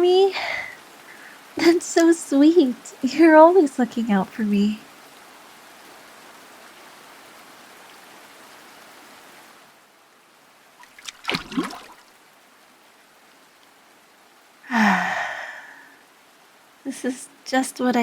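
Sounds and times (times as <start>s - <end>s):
running water: 0.0s - 5.0s, 10.7s - 12.7s
splashing and sloshing in bath: 10.8s - 12.1s.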